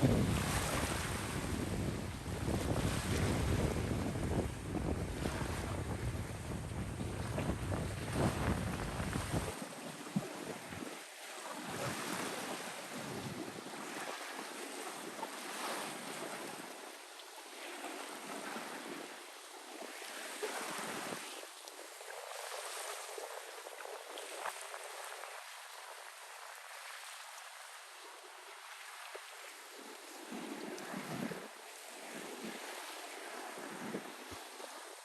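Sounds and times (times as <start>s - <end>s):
wind on microphone: 0.0s - 11.0s, 11.6s - 14.1s, 30.3s - 35.0s.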